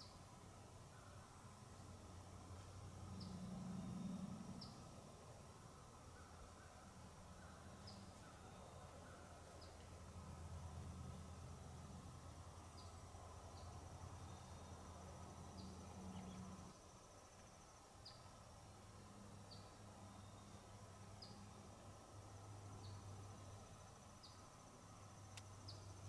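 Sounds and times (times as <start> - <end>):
insect trill: 0.0 - 26.0.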